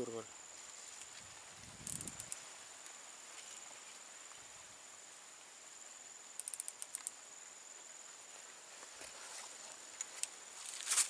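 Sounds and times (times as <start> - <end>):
insect trilling: 0.0 - 8.6
light clicks: 6.3 - 7.2.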